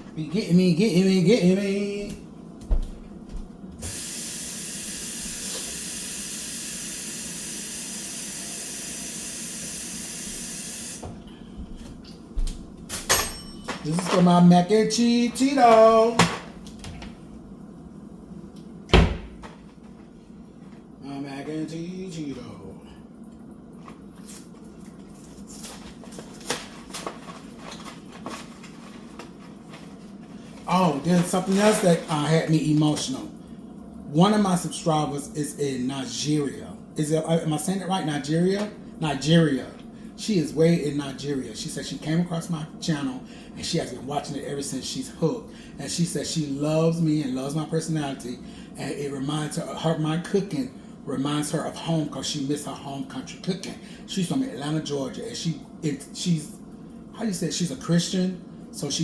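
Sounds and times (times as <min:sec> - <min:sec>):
steady low hum: 0:00.0 - 0:59.0
kitchen tap running: 0:03.8 - 0:11.1.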